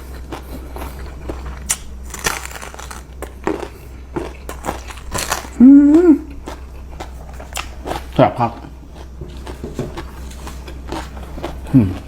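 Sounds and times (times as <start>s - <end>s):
crunching bites: 0.4s - 8.2s.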